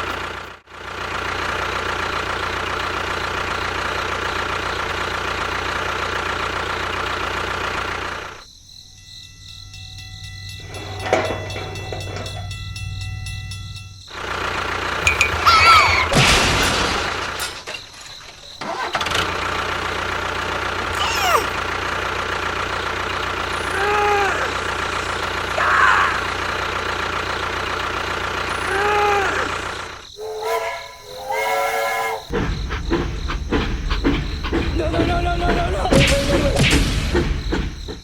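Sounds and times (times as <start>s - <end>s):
small engine running: 0.0s - 8.6s, 9.8s - 38.0s
short pitched calls: 20.9s - 21.7s, 28.6s - 32.3s.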